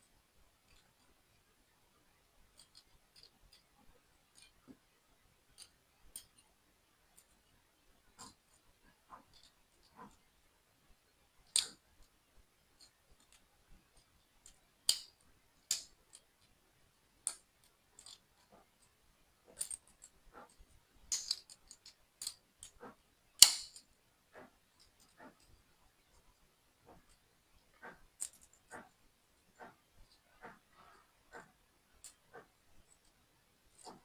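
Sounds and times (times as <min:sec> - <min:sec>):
plastic bricks clicking: 0:11.5 - 0:11.8, 0:14.4 - 0:15.1, 0:15.7 - 0:16.3, 0:21.1 - 0:22.8, 0:23.4 - 0:23.8.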